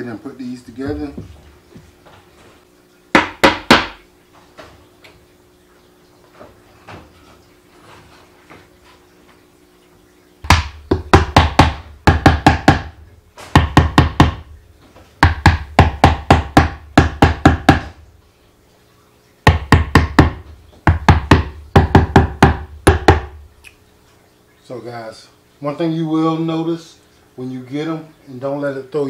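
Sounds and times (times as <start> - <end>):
hammer striking wooden box: 3.2 - 4.0, 10.5 - 14.5, 15.2 - 18.0, 19.5 - 23.4.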